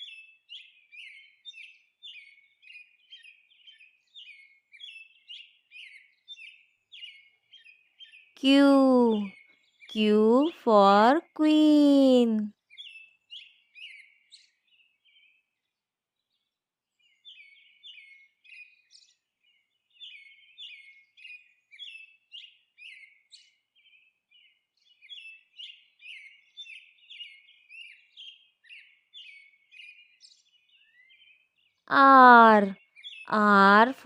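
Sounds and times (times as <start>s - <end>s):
birds chirping: 31.9s - 34.0s.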